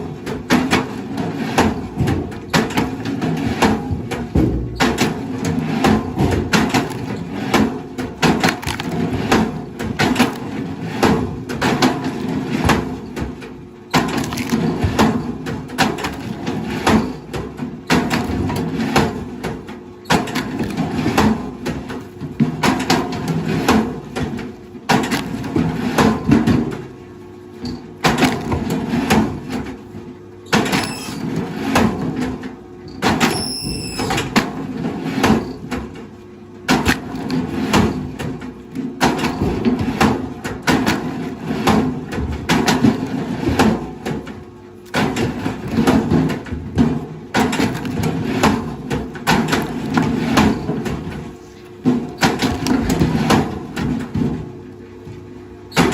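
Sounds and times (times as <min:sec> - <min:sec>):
wood cracking and splintering: 0:08.3 - 0:09.1, 0:14.1 - 0:14.8
machinery hum: 0:30.5 - 0:31.6, 0:32.6 - 0:34.7.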